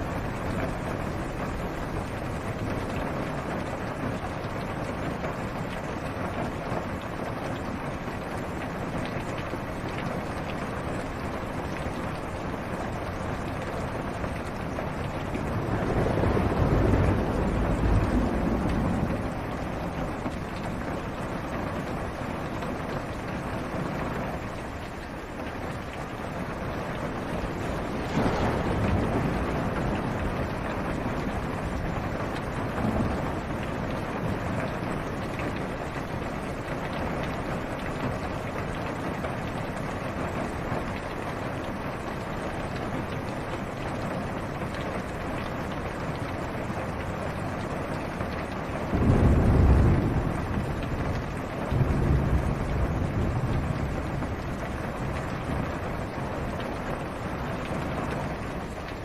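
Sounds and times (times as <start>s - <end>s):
rain on a car roof: 0.0s - 59.0s
low rolls of thunder: 10.6s - 22.2s, 26.0s - 38.9s, 48.7s - 58.6s.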